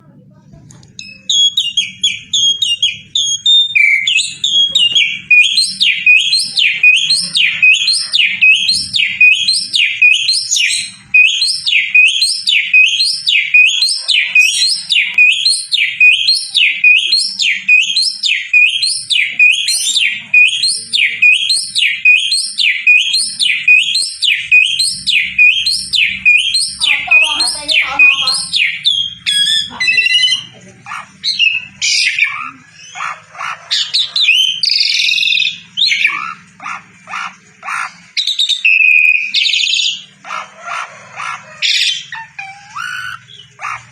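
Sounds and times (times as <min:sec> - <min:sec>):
bird chattering notes: 0:00.7 - 0:43.9.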